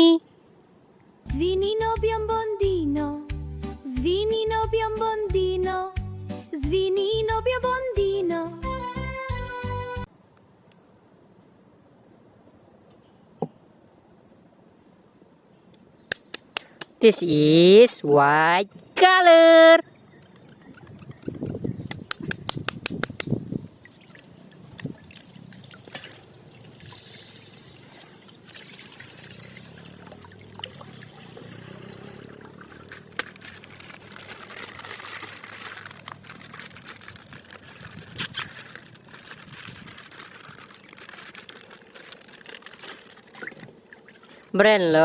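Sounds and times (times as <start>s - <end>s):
plastic wrapping crinkling: 31.3s - 44.4s.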